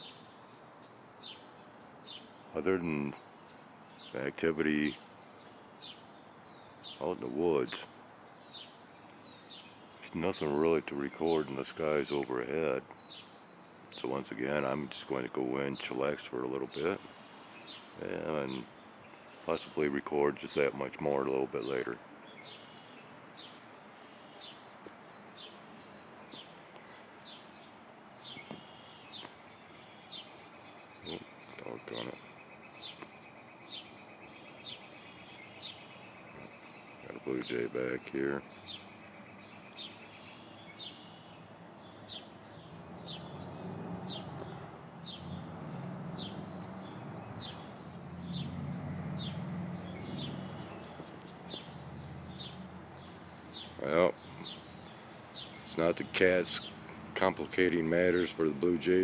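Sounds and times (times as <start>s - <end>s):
bird calling faintly: 16.8s - 20.0s, 21.6s - 57.4s.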